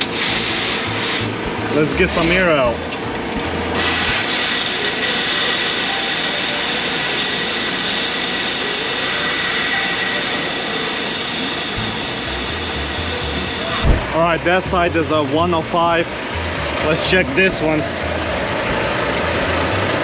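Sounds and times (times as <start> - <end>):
air hissing from tire valve: 0.0 - 1.4, 3.8 - 14.0.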